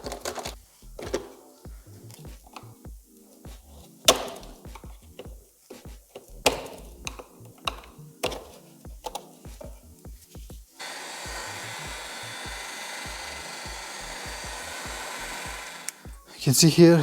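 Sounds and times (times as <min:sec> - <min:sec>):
knocks and clicks of hand work: 0:06.2 - 0:09.8
power tool whirring: 0:10.8 - 0:16.2.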